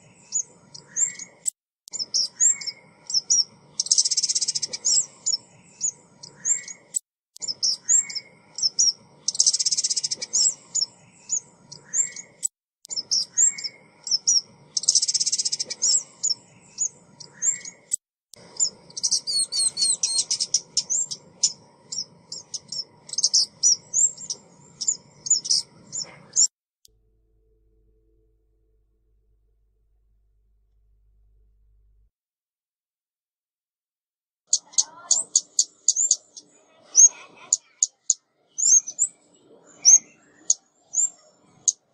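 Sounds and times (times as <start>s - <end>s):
songbird chirps and buzzy trills: 0.0s - 26.5s.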